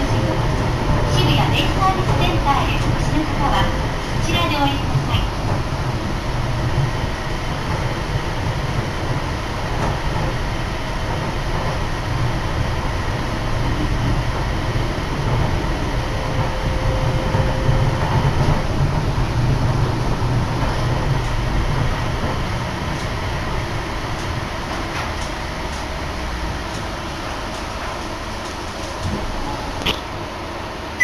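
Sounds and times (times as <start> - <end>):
train cabin rumble: 0.0 - 31.0.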